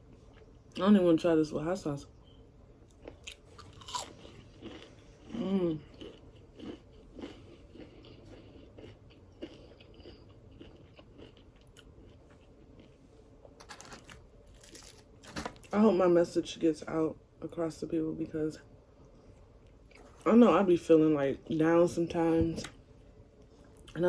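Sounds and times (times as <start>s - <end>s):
chewing crispy fried fish: 2.8s - 15.2s.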